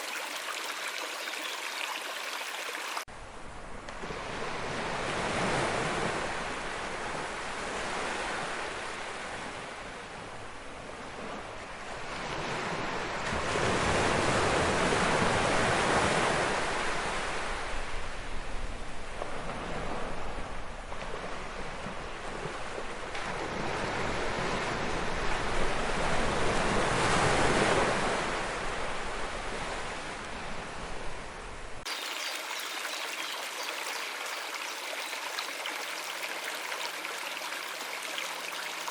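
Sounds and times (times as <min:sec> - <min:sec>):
running water stream: 0:00.0 - 0:03.1, 0:31.8 - 0:38.9.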